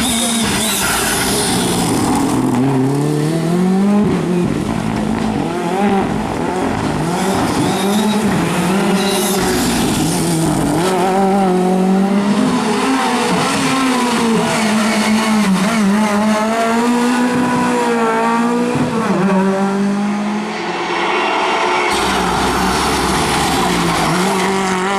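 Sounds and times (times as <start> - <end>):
rally car engine revving: 0.0 - 24.9.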